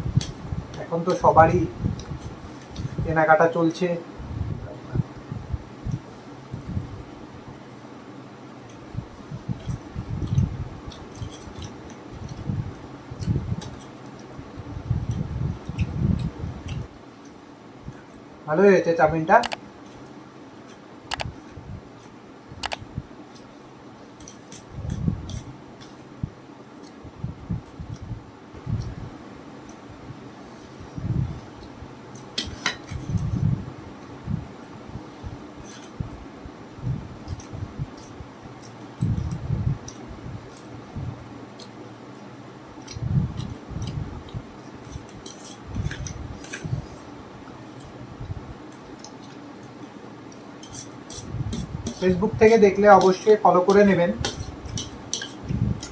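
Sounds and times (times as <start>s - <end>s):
chewing and mouth noises: 9.5s - 14.4s, 15.0s - 18.2s, 41.5s - 47.0s
cutlery clicks: 54.2s - 55.9s.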